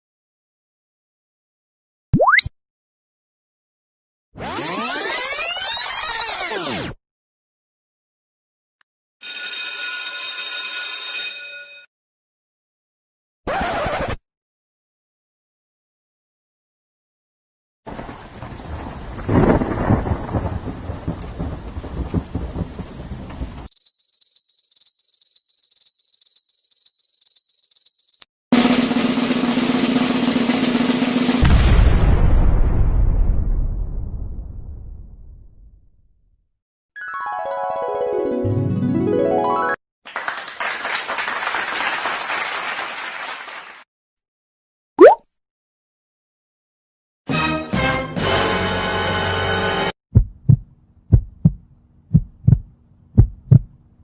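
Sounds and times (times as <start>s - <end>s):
rain: 17.9s - 23.7s
thunderclap rumbling: 17.9s - 23.7s
drum roll: 28.6s - 31.6s, 50.2s - 51.6s, 52.2s - 53.7s
group of people clapping: 40.1s - 43.9s.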